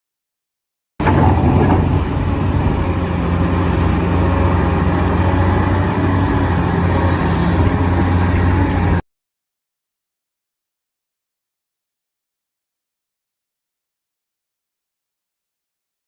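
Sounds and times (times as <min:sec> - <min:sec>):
model construction machine running: 0:01.0 - 0:09.0.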